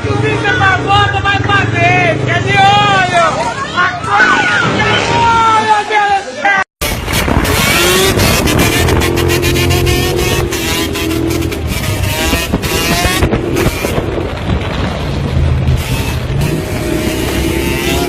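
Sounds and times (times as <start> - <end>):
vehicle engine revving: 6.8 - 18.0.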